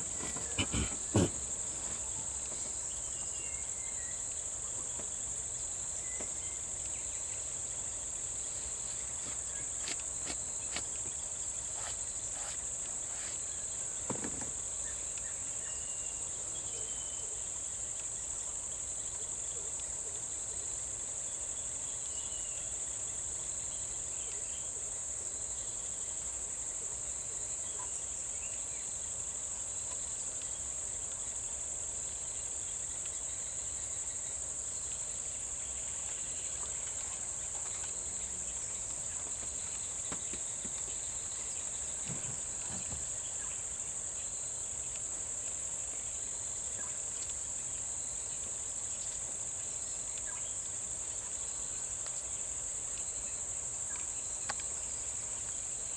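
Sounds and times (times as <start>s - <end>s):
faint knocks: 0.0s - 2.8s
insects droning: 0.0s - 55.9s.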